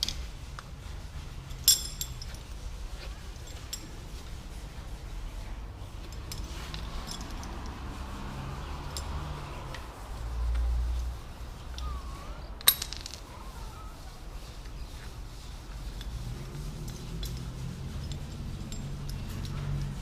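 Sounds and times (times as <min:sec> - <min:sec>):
light metallic clicks and taps: 0:16.8 - 0:20.0.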